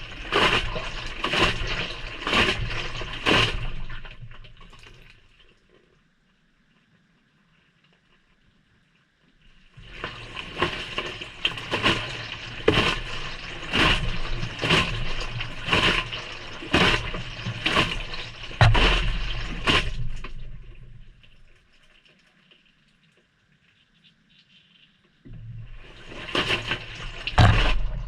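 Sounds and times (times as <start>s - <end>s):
water splashing: 0.0s - 5.6s, 9.6s - 23.6s, 25.3s - 28.0s
water and laundry sloshing in washer: 0.0s - 6.0s, 9.4s - 28.0s.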